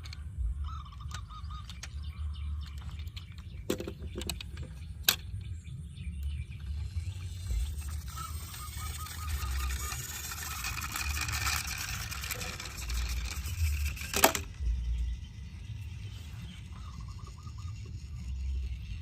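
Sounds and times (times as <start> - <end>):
toy cars clattering: 0.0 - 5.4, 6.6 - 19.0
low rumble: 4.4 - 19.0.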